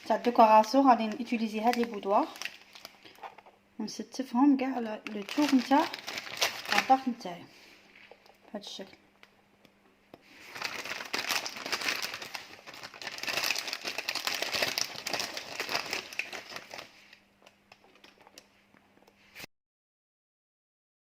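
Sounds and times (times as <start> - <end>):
plastic packet crinkling: 0.0 - 3.5, 4.7 - 7.2, 10.4 - 18.5.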